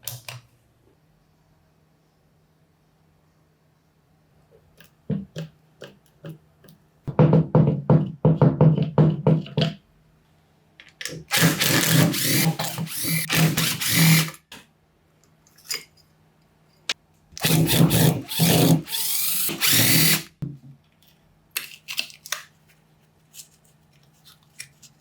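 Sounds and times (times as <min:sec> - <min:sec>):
electric power tool running: 0:11.3 - 0:14.4, 0:17.4 - 0:20.3.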